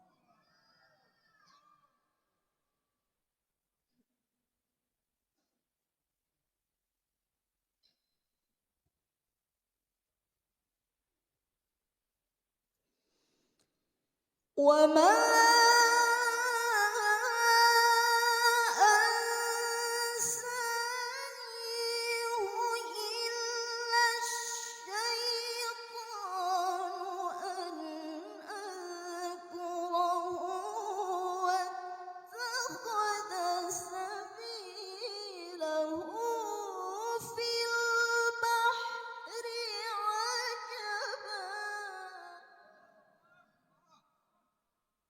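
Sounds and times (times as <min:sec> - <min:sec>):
woman reciting melodically: 0:14.6 - 0:42.9.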